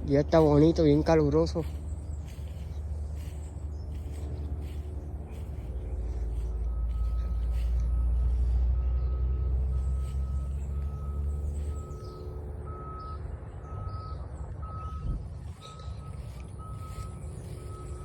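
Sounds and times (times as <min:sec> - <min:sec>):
heavy truck engine rumble: 0:00.0 - 0:18.0
reversing alarm beeping: 0:06.1 - 0:18.0.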